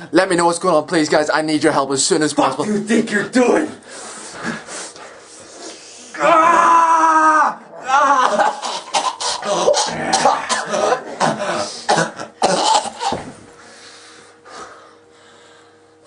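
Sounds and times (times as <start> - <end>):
faint steady hum: 0.0 - 16.0
person coughing: 8.3 - 13.4.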